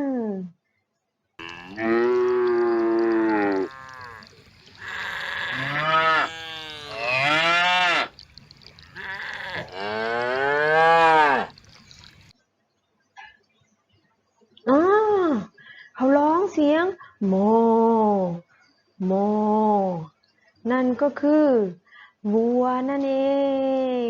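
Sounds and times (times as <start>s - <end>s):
cow mooing: 1.4s - 11.6s.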